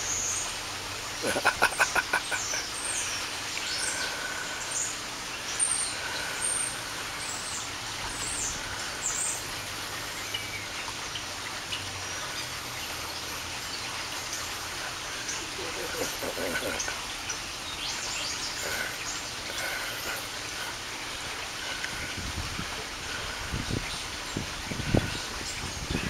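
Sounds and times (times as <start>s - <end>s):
steady hiss: 0.0s - 26.0s
small birds chirping: 1.2s - 22.2s.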